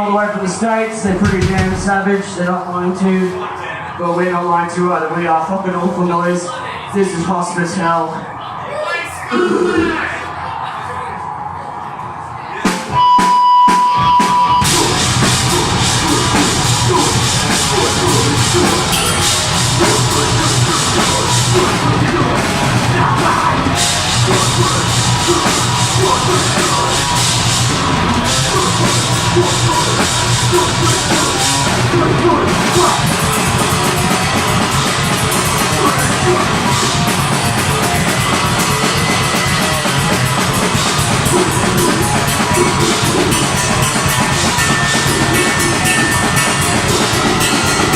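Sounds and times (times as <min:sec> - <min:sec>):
metal band playing live: 0:01.0 - 0:02.2, 0:12.7 - 0:47.9
steady high tone: 0:12.9 - 0:39.6, 0:40.4 - 0:47.9.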